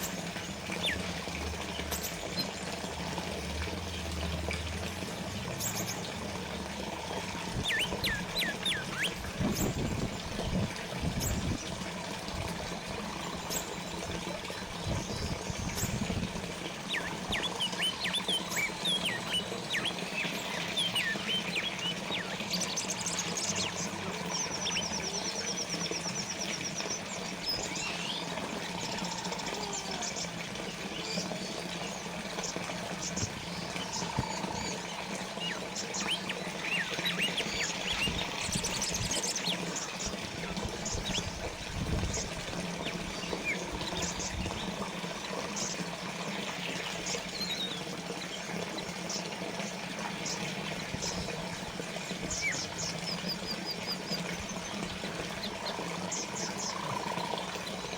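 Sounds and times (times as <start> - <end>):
small birds chirping: 0.0 - 2.6, 5.2 - 11.8, 13.0 - 49.3
fountain water splashing: 0.0 - 57.9.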